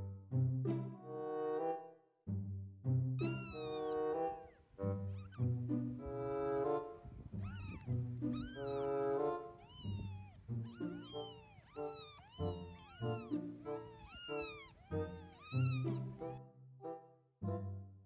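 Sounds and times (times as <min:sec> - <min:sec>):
kittens meowing: 0:03.2 - 0:16.4.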